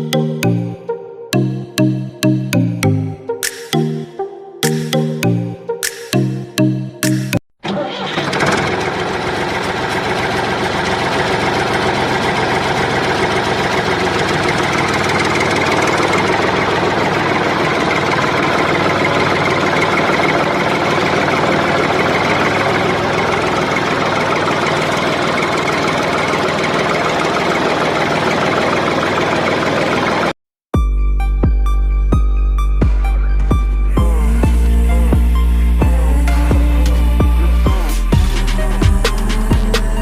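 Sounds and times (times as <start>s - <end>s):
small motor running: 8.8s - 30.4s.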